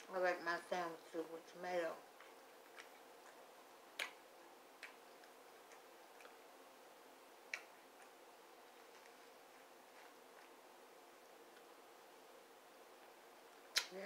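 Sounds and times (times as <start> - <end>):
person chewing with mouth clicks: 2.2 - 4.2, 4.8 - 6.4, 7.4 - 8.2.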